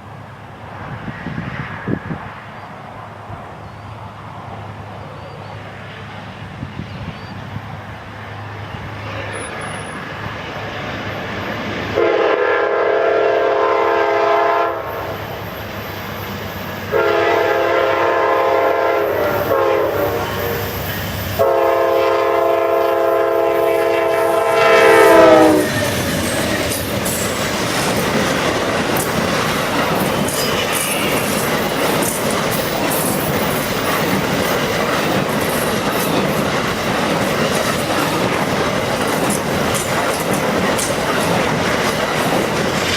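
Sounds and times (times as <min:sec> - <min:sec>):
train wheels rumbling on rails: 0:00.0 - 0:42.9
locomotive air horn blasts: 0:12.0 - 0:15.2, 0:16.9 - 0:20.8, 0:21.4 - 0:26.0.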